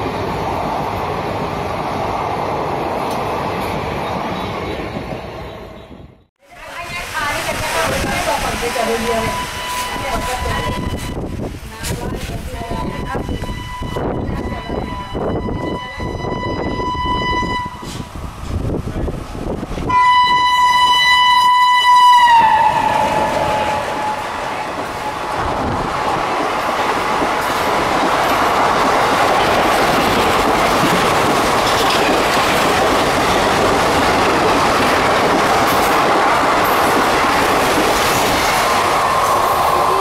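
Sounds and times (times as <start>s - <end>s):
train wheels on rails clickety-clack: 6.8s - 14.5s, 17.8s - 19.9s, 22.9s - 40.0s
locomotive air horn blasts: 12.9s - 18.0s, 19.9s - 24.4s.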